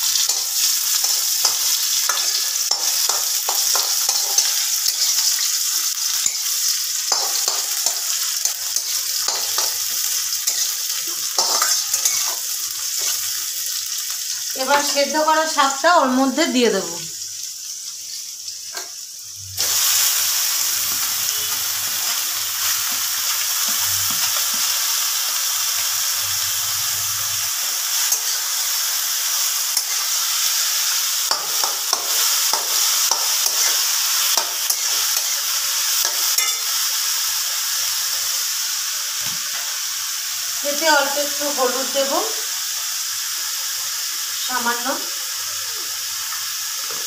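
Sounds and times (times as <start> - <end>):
vegetables sizzling in hot oil: 0.0 - 47.0
metal spatula scraping pan: 6.1 - 13.2.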